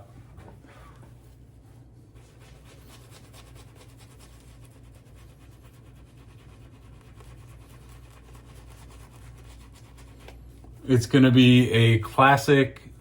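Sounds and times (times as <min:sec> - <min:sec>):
shaving brush swishing in soap: 0:00.8 - 0:11.2.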